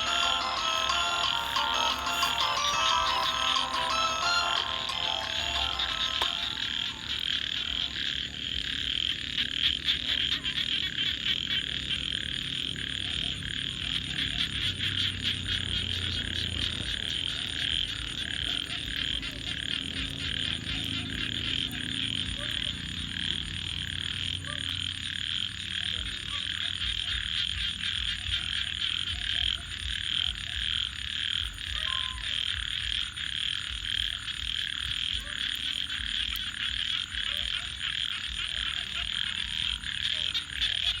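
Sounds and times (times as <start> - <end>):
high pulsing trill: 0.0 - 8.0
frogs calling: 0.0 - 41.0
campfire crackling and popping: 32.4 - 41.0.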